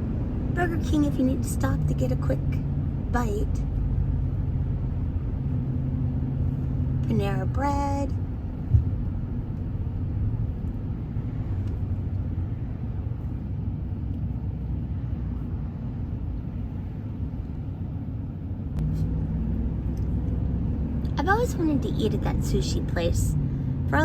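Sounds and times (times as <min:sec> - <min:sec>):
vehicle cabin road noise: 0:00.0 - 0:24.0.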